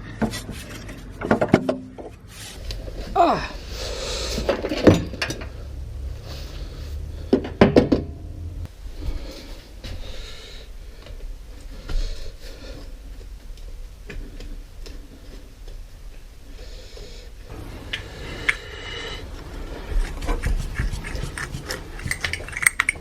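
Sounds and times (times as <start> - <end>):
hand tools and metal parts clinking: 0.0 - 2.7, 17.5 - 23.0
rustling: 0.0 - 3.1, 17.5 - 23.0.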